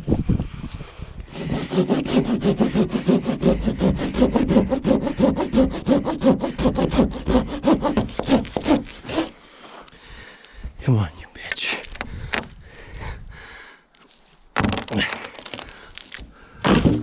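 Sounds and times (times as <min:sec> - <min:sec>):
hand saw cutting wood: 0:01.3 - 0:09.4.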